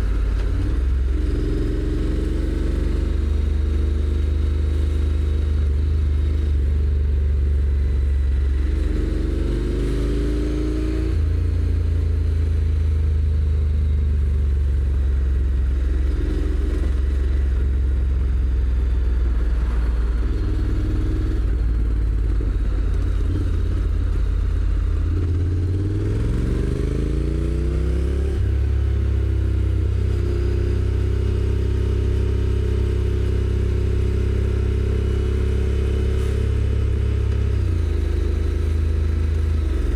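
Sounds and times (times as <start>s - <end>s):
motorcycle engine revving: 0.0s - 13.4s, 14.2s - 39.9s
gear shifting up: 15.7s - 29.1s.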